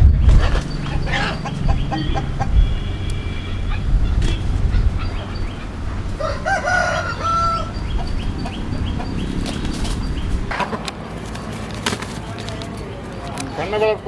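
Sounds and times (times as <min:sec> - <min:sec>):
chickens clucking: 0:00.0 - 0:10.5
rooster crowing: 0:00.4 - 0:10.5.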